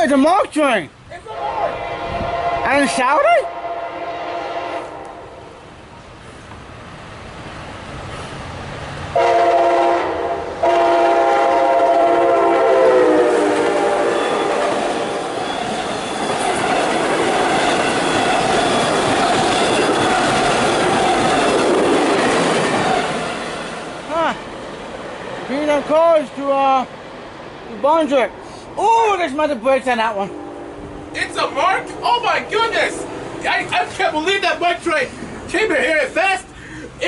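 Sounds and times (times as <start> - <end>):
train cars rumbling and clattering: 0.0 - 37.0
train horn blasts: 1.2 - 5.5, 9.2 - 15.3, 30.2 - 32.0.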